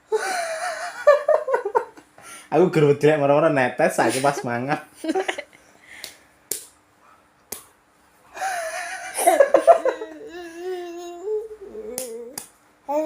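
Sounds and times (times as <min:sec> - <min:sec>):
child's high-pitched vocal sound: 0:10.2 - 0:13.0.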